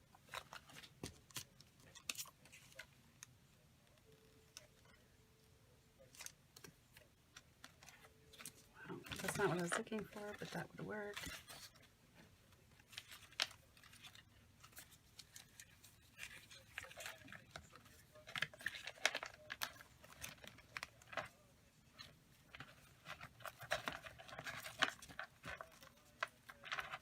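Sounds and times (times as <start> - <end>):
paper rustling: 6.0 - 27.0.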